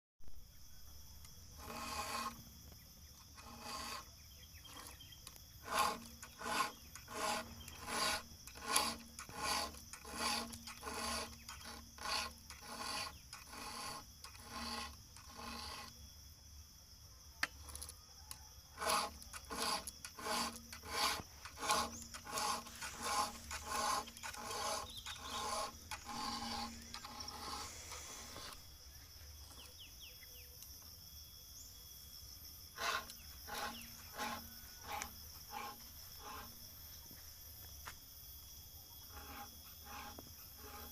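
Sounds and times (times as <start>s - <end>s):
file rasping on chainsaw chain: 1.3s - 16.1s, 17.4s - 28.6s, 32.7s - 36.7s, 39.0s - 40.9s.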